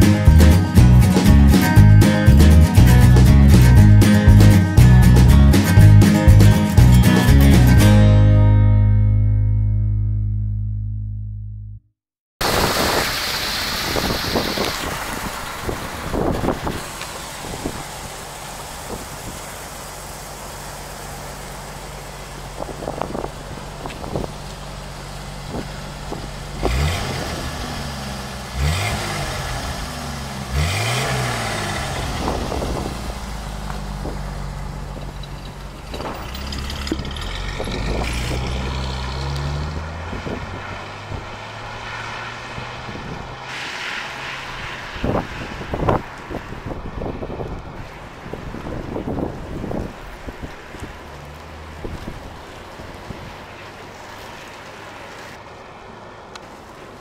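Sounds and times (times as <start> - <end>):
engine throttle blips: 8.9 - 47.8
tires hissing on wet pavement: 12.4 - 57.0
car engine idling: 14.4 - 41.9, 48.5 - 57.0.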